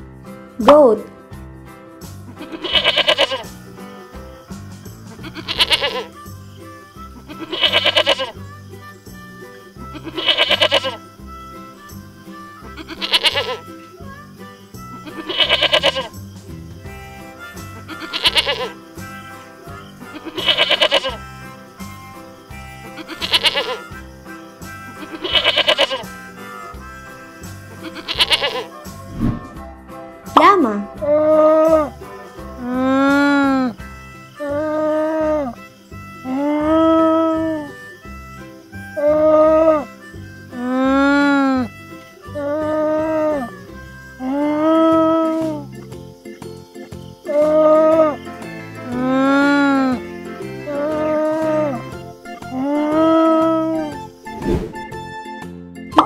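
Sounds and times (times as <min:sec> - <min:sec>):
background music with steady beat: 0:00.0 - 0:56.0
goat bleating: 0:02.4 - 0:03.5, 0:05.2 - 0:06.2, 0:07.2 - 0:08.4, 0:09.8 - 0:11.0, 0:12.6 - 0:13.7, 0:15.0 - 0:16.1, 0:17.9 - 0:18.8, 0:20.0 - 0:21.2, 0:23.0 - 0:24.0, 0:25.0 - 0:26.2, 0:27.8 - 0:28.7, 0:50.7 - 0:51.8.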